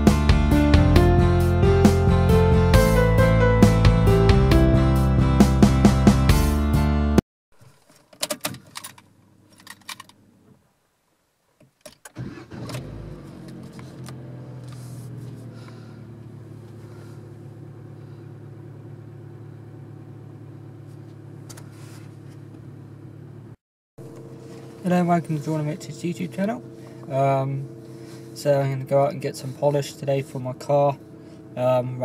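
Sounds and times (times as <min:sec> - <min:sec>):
keys rattling in ignition: 0:07.8 - 0:10.2
car engine starting and idling: 0:11.9 - 0:32.0.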